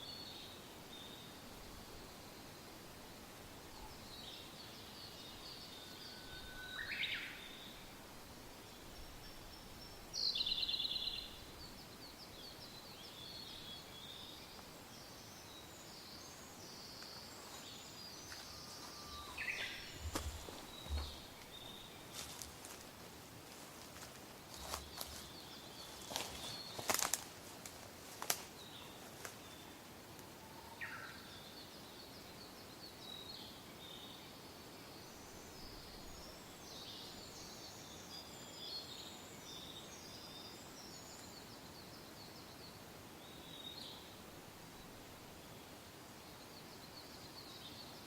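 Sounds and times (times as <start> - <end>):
soft steady wind: 0.0 - 48.0
wild birds singing and calling: 3.6 - 8.0, 8.6 - 22.8, 24.6 - 27.2, 28.1 - 48.0
low thumps: 19.9 - 21.3.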